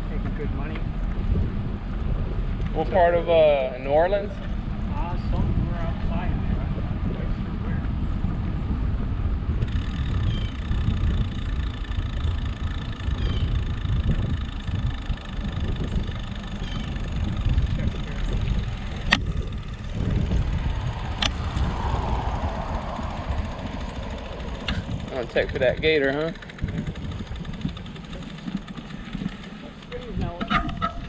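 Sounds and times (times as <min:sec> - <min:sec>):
wind rumbling on microphone: 0:00.0 - 0:31.0.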